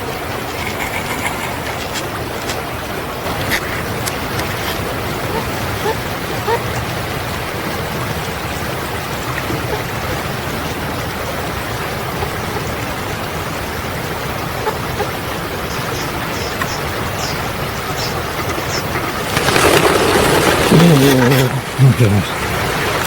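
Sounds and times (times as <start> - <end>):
rushing water: 0.0 - 23.0
high-pitched bird calls: 15.7 - 19.2.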